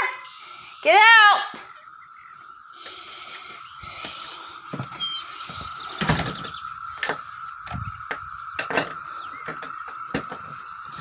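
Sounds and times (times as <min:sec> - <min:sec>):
cicada chorus drone: 0:00.0 - 0:11.0
sharp knocks and clatters: 0:06.0 - 0:10.6.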